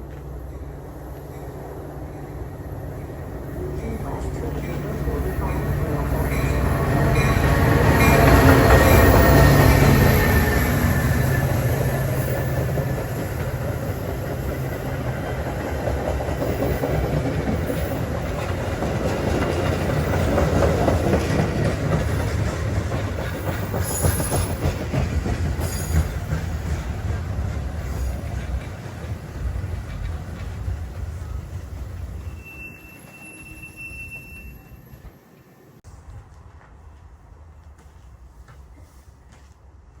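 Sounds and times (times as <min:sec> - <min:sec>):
train wheels clattering on rails: 0:03.8 - 0:35.5.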